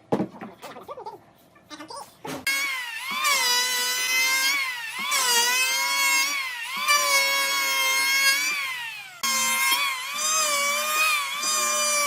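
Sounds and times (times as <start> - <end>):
power tool motor whining: 2.5 - 12.0.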